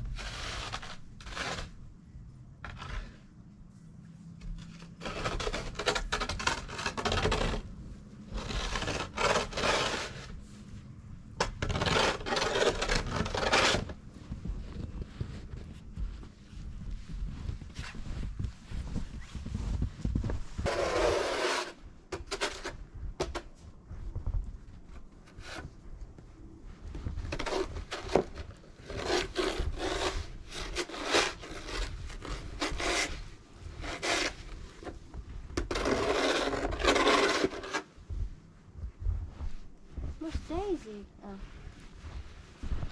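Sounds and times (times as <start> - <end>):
snow scraped off wooden deck: 0.1 - 1.8, 8.3 - 10.4, 11.6 - 14.0, 20.6 - 22.6, 27.3 - 34.9, 35.6 - 37.9.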